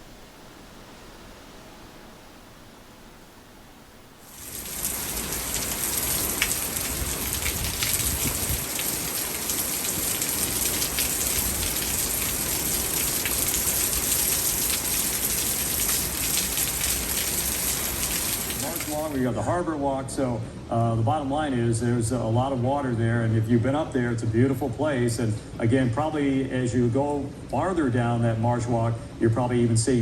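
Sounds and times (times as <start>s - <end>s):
heavy rain falling: 4.2s - 19.4s.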